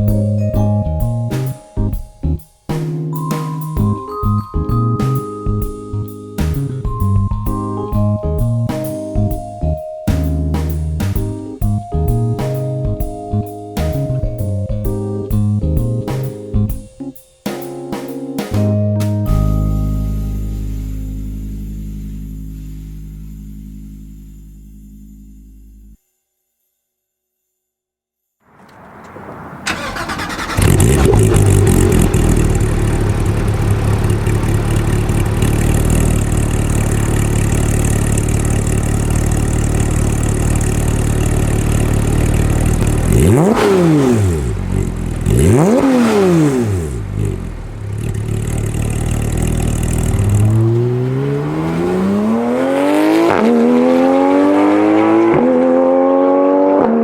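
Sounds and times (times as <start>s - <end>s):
sports car engine revving: 28.7s - 57.0s.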